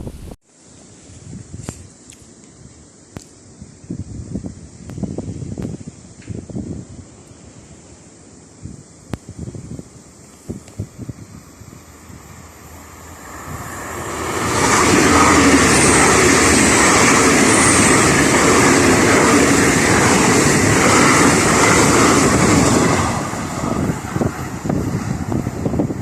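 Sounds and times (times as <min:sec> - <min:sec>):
wind gusting on microphone: 0:01.1 - 0:02.0, 0:02.6 - 0:26.0
train passing: 0:10.6 - 0:26.0.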